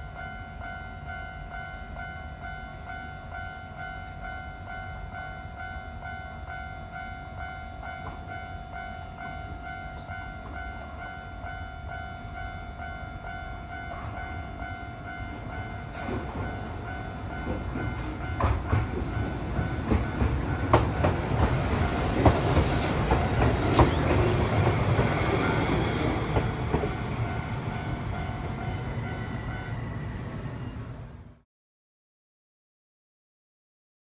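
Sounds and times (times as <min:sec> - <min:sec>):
railroad crossing warning bell: 0:00.0 - 0:31.4
train rumbling over crossing: 0:00.0 - 0:31.4
wheels clacking on rail joints: 0:15.3 - 0:29.9.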